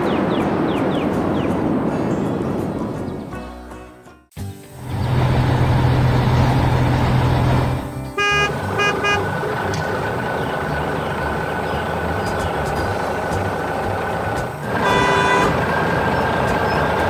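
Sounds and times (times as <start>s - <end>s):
heavy vehicle engine rumbling: 4.6s - 17.0s
horn toots: 8.1s - 9.8s, 14.7s - 15.8s.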